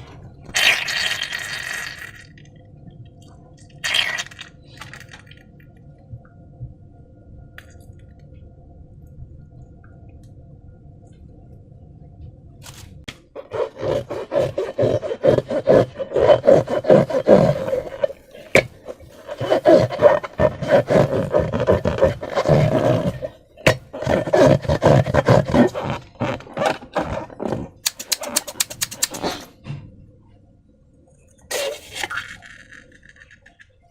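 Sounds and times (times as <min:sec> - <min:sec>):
slime squelching and crackling: 0:03.8 - 0:05.4, 0:13.4 - 0:29.4.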